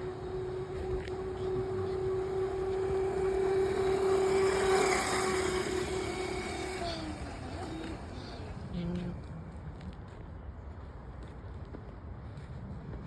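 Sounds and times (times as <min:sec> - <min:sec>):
electric motor whining: 0:00.0 - 0:09.2
chain and tyre noise: 0:00.0 - 0:13.0.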